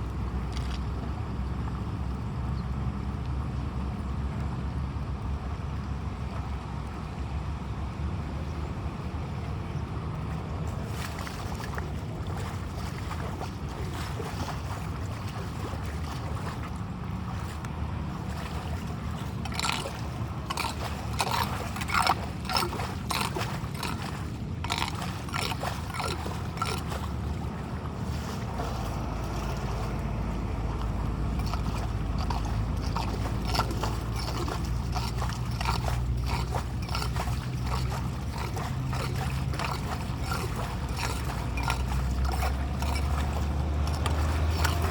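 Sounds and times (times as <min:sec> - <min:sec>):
sharp splashes and knocks: 0:00.0 - 0:01.0, 0:10.2 - 0:44.9
water flowing and gurgling: 0:08.6 - 0:44.9.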